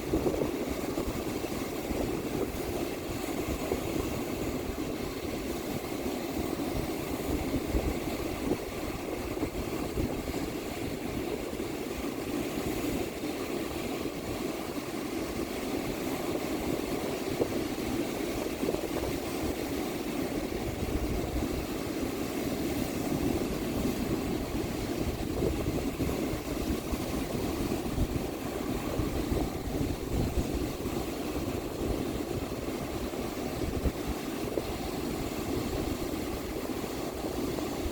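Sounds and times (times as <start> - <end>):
ocean surf washing onto beach: 0.0 - 37.9
wind buffeting microphone: 0.0 - 37.9.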